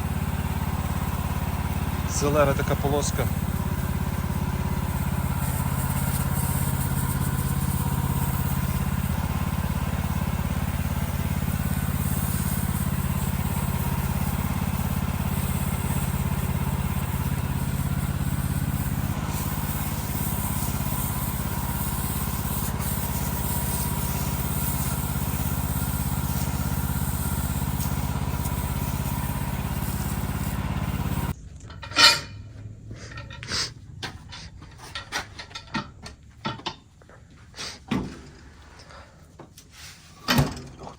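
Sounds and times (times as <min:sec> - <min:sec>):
sawmill engine running: 0:00.0 - 0:35.7
steady hiss: 0:02.1 - 0:31.4.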